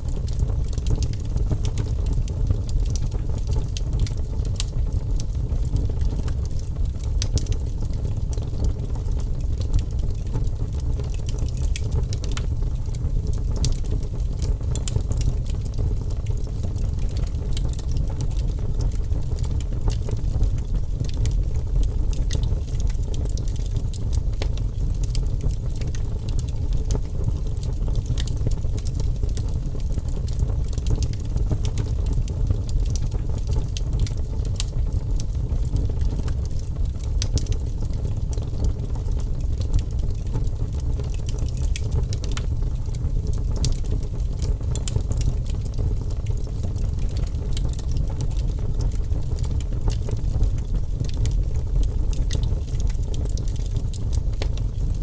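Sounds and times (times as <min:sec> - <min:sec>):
fire low rumble: 0:00.0 - 0:55.0
wood fire crackling: 0:00.0 - 0:55.0.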